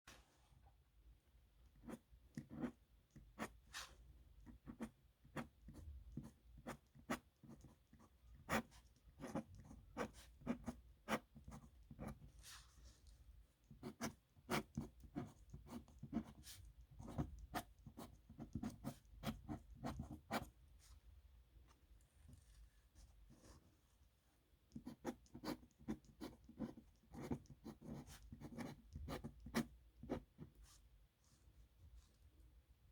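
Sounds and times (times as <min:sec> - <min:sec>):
pen nib scratching on paper: 0:01.8 - 0:12.6, 0:13.6 - 0:20.6, 0:24.7 - 0:30.6.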